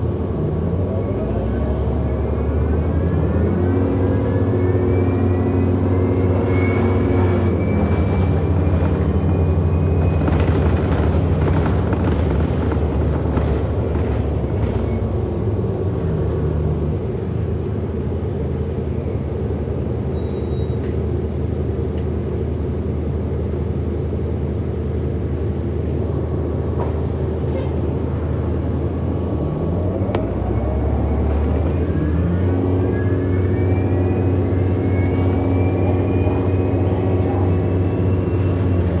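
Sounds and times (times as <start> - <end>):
electric bus motor whine: 0.2 - 14.8, 28.0 - 39.0.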